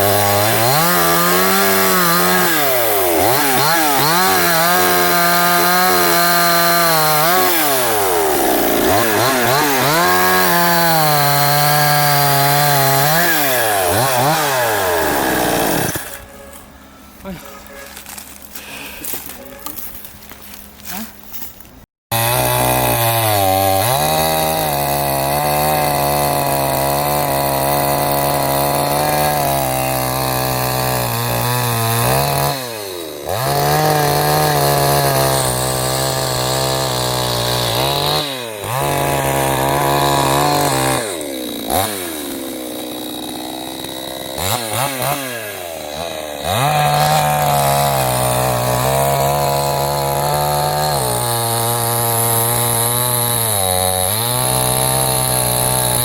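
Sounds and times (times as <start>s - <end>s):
chainsaw revving: 0.0s - 16.3s, 22.1s - 56.0s.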